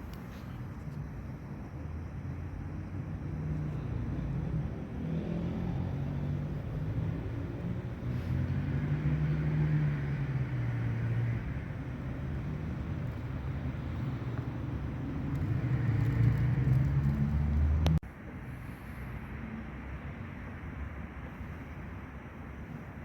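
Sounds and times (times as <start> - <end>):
vehicle engine humming: 2.7 - 18.4.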